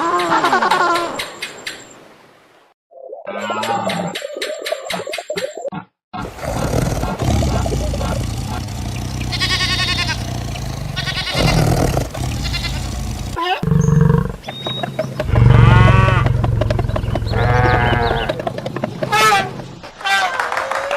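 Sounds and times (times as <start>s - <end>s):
livestock bleating: 9.2s - 13.6s.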